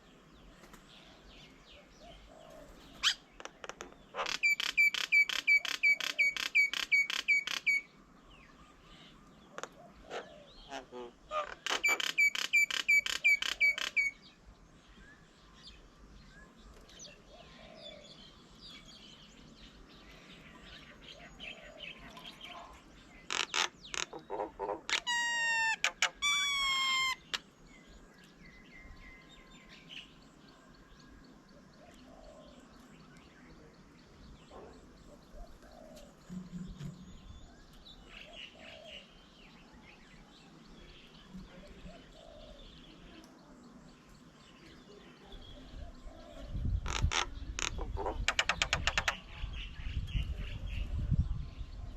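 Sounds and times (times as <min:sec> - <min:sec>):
faint bird chirps: 0:00.0 - 0:51.9
long pitched bird calls: 0:01.3 - 0:22.4, 0:23.1 - 0:33.7, 0:44.6 - 0:50.8.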